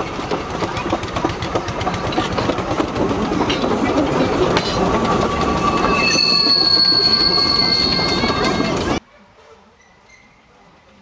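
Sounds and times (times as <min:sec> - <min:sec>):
train wheels clattering: 0:00.0 - 0:09.0
high wheel squeal: 0:03.3 - 0:09.0.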